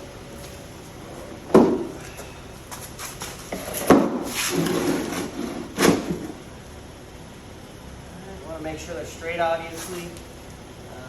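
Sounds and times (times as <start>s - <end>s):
ramp scraping along ground: 2.8s - 6.4s.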